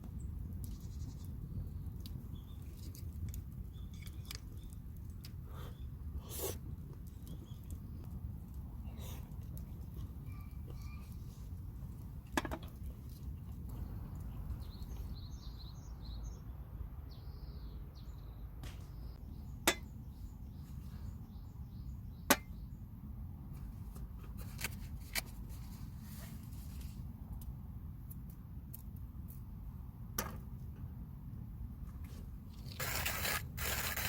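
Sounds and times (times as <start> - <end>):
small birds chirping: 0.0 - 12.2, 13.0 - 22.9.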